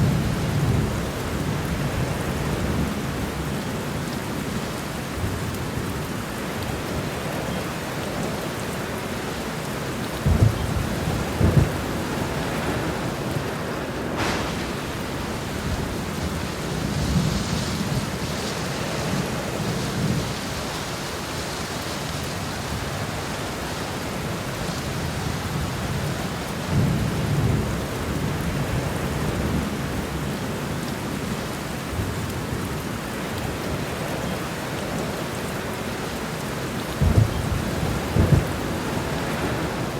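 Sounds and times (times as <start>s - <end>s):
thunder rumbling: 0.0s - 4.0s, 8.8s - 21.0s, 22.7s - 30.1s, 36.4s - 39.9s
heavy rain falling: 0.0s - 39.9s
sharp thunder cracks: 10.2s - 18.7s, 37.0s - 39.9s.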